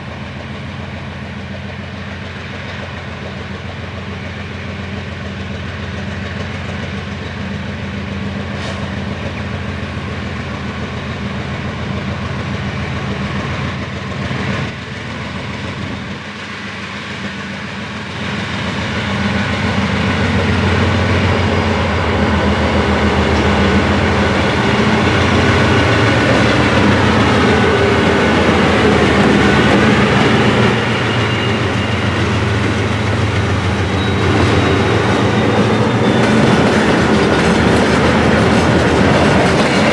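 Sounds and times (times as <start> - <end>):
diesel locomotive engine running: 0.0 - 39.9
wheels clattering over rail joints: 22.8 - 39.9
faint high squeal: 25.8 - 36.9.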